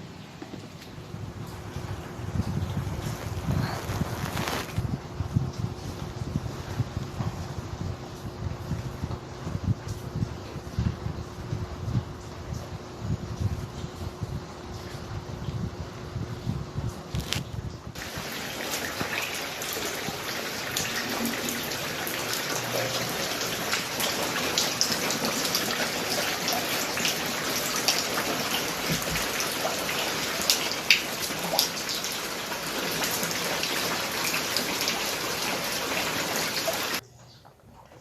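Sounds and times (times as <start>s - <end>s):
heavy rain: 18.0s - 37.0s.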